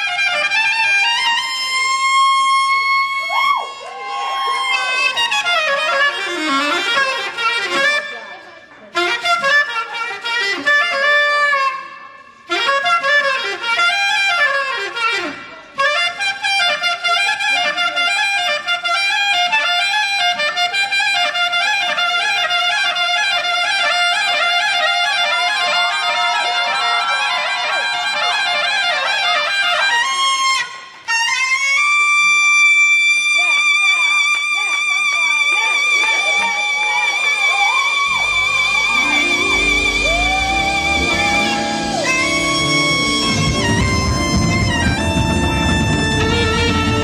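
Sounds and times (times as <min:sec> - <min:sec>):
saxophone jazz melody: 0:00.0 - 0:03.1, 0:04.8 - 0:32.9, 0:37.3 - 0:47.0
musical accompaniment: 0:04.8 - 0:18.1, 0:36.9 - 0:47.0.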